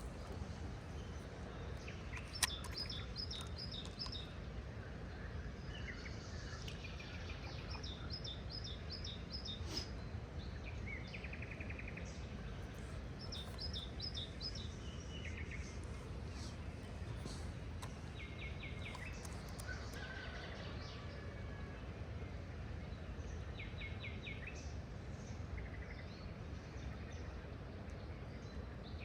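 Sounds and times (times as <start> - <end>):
bird chirping: 0.0 - 4.4, 5.8 - 20.1
sharp click: 2.1 - 4.2.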